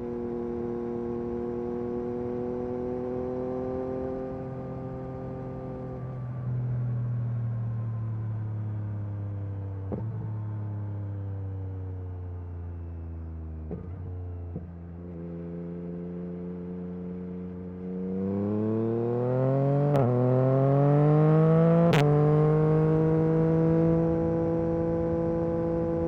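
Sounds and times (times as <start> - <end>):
motorcycle engine accelerating: 0.0 - 6.1, 13.7 - 26.0.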